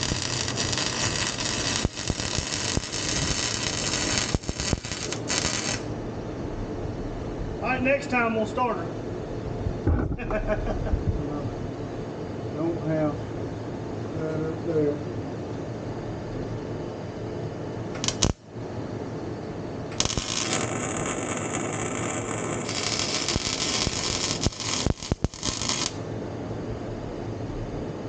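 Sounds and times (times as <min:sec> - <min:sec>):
welding arc hissing and crackling: 0:00.0 - 0:05.9, 0:18.0 - 0:18.4, 0:19.9 - 0:26.0.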